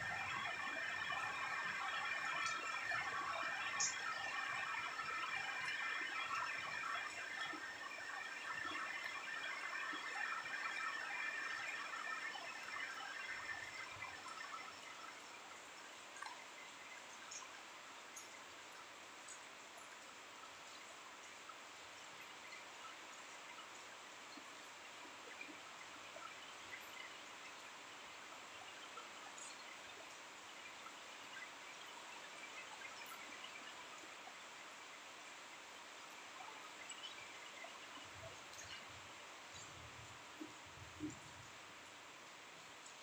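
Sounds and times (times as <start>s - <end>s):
light ticks of drops: 0.0s - 18.4s.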